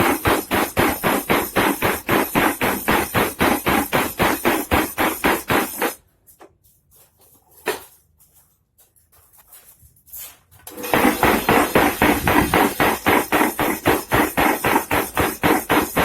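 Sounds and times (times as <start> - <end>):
power hammer pounding steel: 0.0 - 6.0, 10.8 - 16.0.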